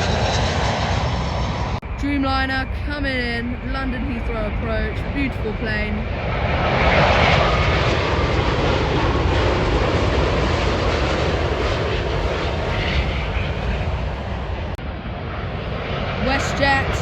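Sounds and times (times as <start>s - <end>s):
jet airliner passing overhead: 0.0s - 17.0s.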